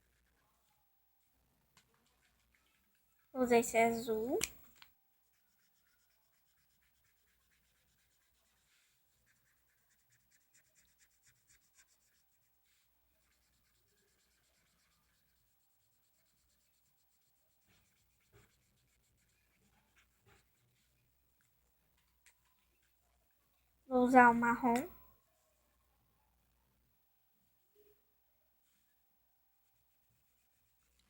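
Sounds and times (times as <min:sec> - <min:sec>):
marker scratching on paper: 0:00.0 - 0:00.8, 0:01.8 - 0:03.0, 0:03.6 - 0:22.9, 0:29.6 - 0:31.0.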